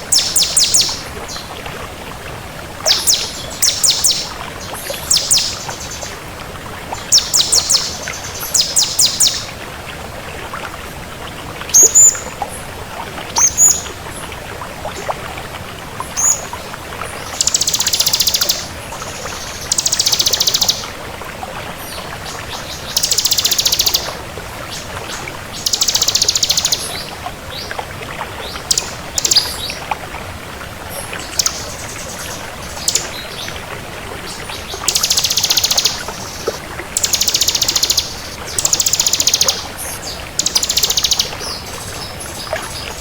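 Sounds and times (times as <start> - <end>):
bird singing: 0.1 - 1.4, 2.9 - 4.4, 5.0 - 6.1, 7.1 - 9.5, 17.4 - 18.7, 19.4 - 20.9, 22.7 - 24.1, 25.6 - 27.0, 28.7 - 29.8, 31.2 - 33.5, 34.5 - 43.0.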